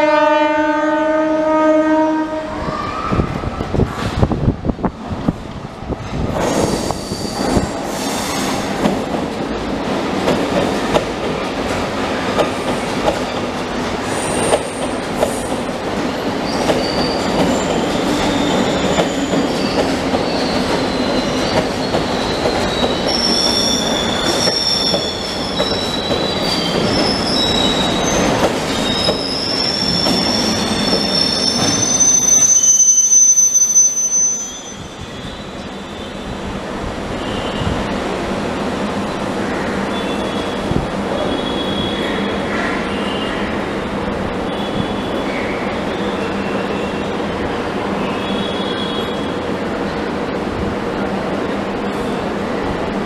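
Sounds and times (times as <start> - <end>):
train wheels rumbling on rails: 2.4 - 32.8
wheel and brake squeals: 6.4 - 8.6, 16.4 - 36.3.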